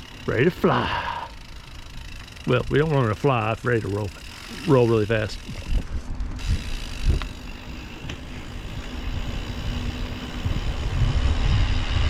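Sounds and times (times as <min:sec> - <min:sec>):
bike tyre rumble: 0:00.0 - 0:12.0
wind rushing over microphone: 0:05.3 - 0:12.0.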